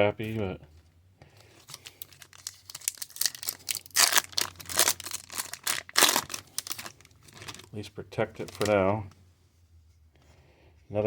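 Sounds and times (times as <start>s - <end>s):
plastic card sleeve crinkling: 1.4s - 9.1s.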